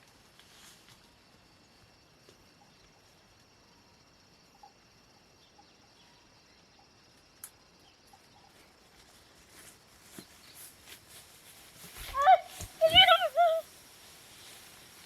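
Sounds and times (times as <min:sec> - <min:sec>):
soft rustling: 0:08.5 - 0:15.0.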